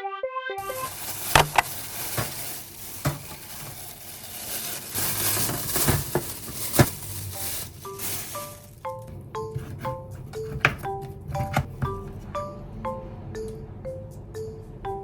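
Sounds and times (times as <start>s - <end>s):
utensils clinking against pots: 0.6s - 8.7s
food sizzling: 0.6s - 8.8s.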